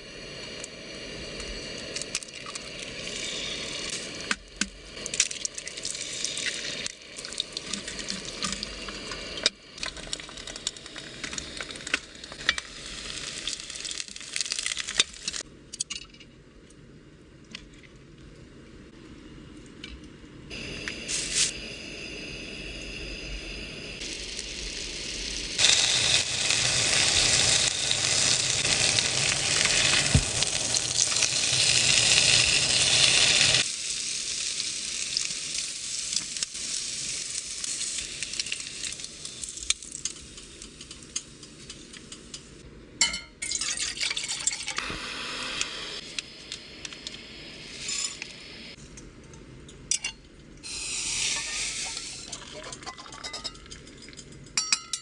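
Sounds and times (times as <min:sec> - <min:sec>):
food sizzling in a frying pan: 0:00.0 - 0:15.4, 0:23.0 - 0:42.6, 0:50.6 - 0:53.5.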